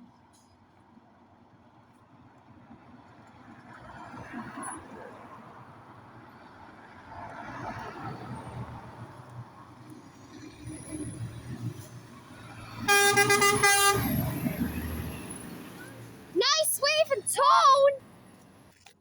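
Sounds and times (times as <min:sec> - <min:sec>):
road traffic passing: 0:02.5 - 0:18.9
vehicle horn toot: 0:12.9 - 0:14.2.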